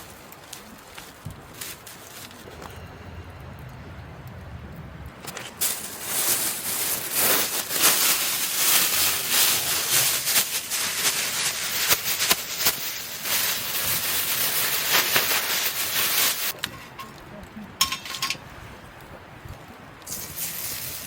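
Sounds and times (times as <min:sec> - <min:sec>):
food sizzling and crackling: 0:05.2 - 0:16.7.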